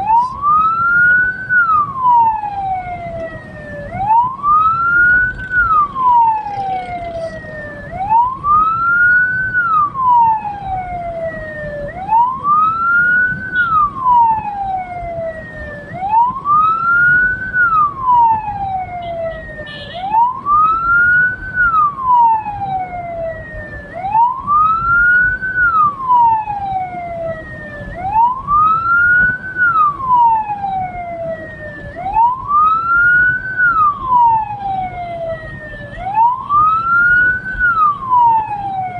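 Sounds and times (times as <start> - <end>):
electronic wail siren: 0.0 - 38.9
low vehicle rumble: 0.0 - 38.9.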